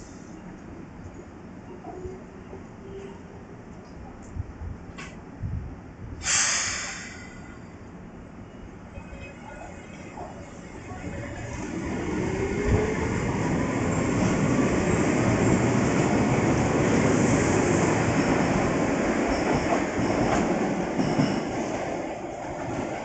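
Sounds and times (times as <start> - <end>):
wheels clattering on rails: 18.0 - 21.8.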